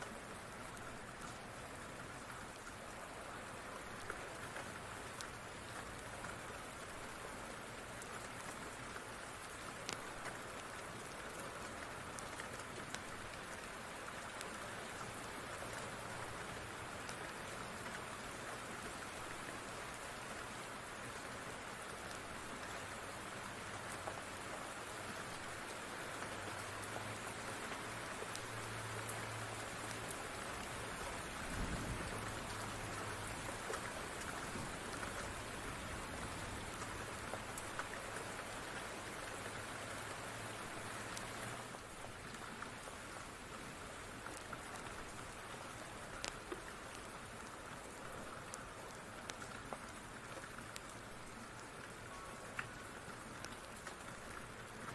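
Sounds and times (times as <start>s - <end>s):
steady rain patter: 0.0s - 54.9s
wood fire crackling: 9.8s - 10.5s.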